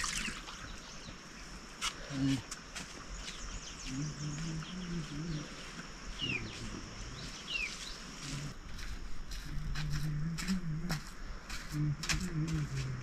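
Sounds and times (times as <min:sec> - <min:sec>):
bird chirping: 0:03.0 - 0:08.5
steady high-pitched buzz: 0:03.7 - 0:13.0
faint voices: 0:03.9 - 0:07.4.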